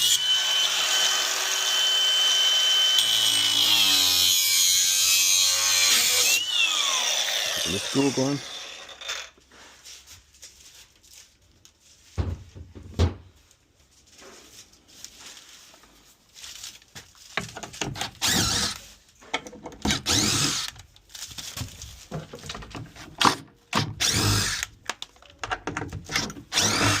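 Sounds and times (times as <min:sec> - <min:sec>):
power drill driving screws: 0:00.0 - 0:09.4, 0:17.9 - 0:18.8, 0:19.8 - 0:20.8, 0:23.2 - 0:24.7, 0:26.1 - 0:27.0.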